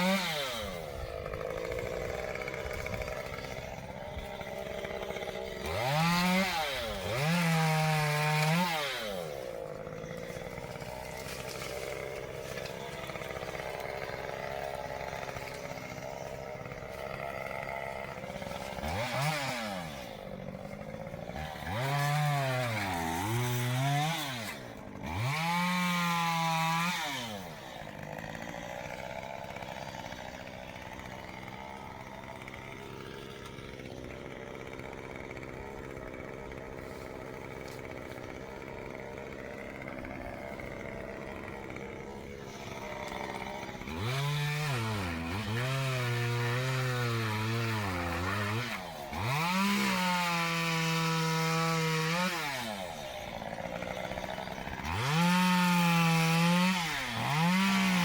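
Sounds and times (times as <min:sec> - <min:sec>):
chainsaw revving: 0:00.0 - 0:58.0.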